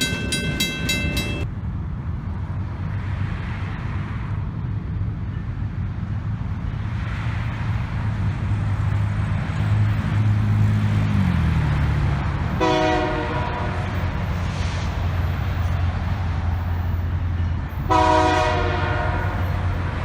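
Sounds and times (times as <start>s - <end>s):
locomotive engine drone: 0.0s - 20.0s
train horn blast: 12.6s - 14.2s, 17.8s - 19.8s.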